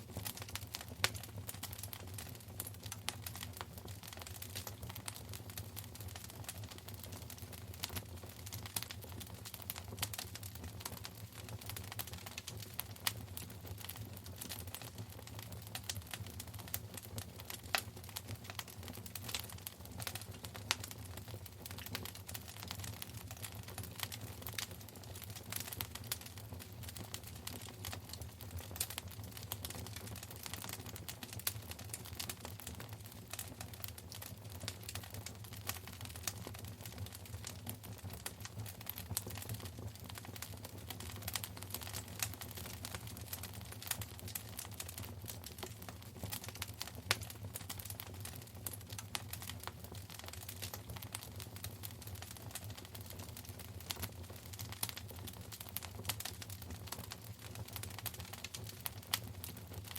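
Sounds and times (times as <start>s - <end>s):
low rumble of flames: 0.0s - 59.9s
wood fire crackling: 0.0s - 59.9s.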